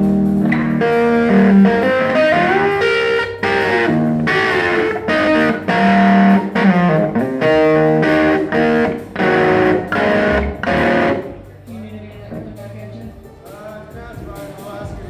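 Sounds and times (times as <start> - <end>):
distorted electric guitar chords: 0.0 - 11.5.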